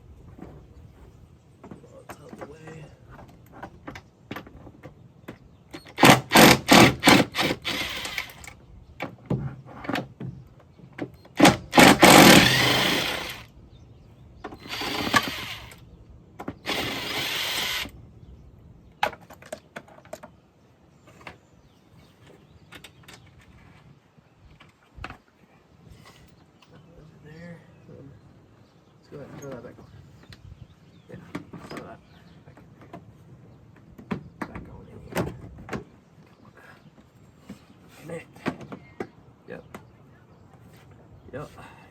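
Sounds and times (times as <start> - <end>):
power tool running in bursts: 6.0 - 8.5, 11.4 - 13.5, 14.6 - 15.8, 16.6 - 18.0.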